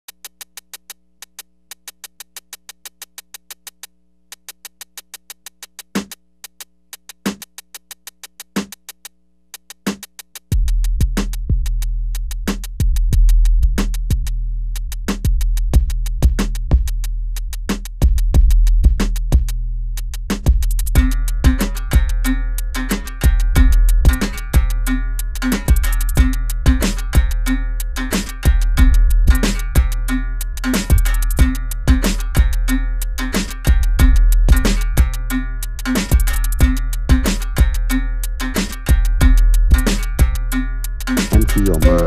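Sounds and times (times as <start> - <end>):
fast hi-hat ticking: 0.1 - 42.0
deep bass with full beat: 10.5 - 42.0.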